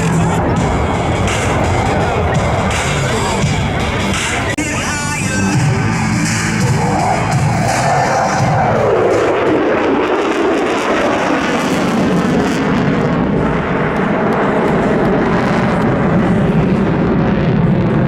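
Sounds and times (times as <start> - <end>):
fighter jet engine roar: 0.0 - 18.0.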